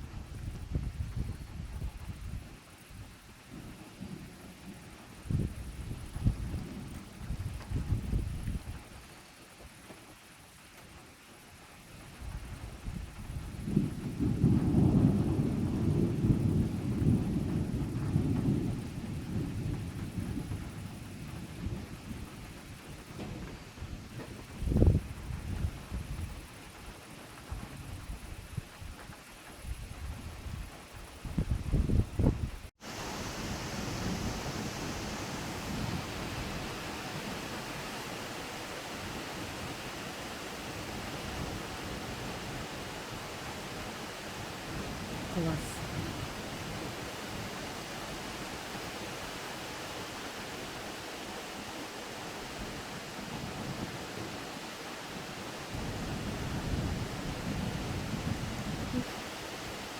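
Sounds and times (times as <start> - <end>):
heavy rain pouring: 12.2 - 26.0, 32.8 - 59.9
thunder rumbling: 12.3 - 26.5, 29.7 - 59.9.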